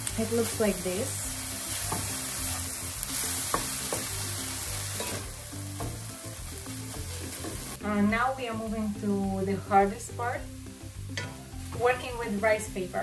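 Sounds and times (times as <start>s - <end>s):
filling sizzling in a frying pan: 0.0s - 13.0s.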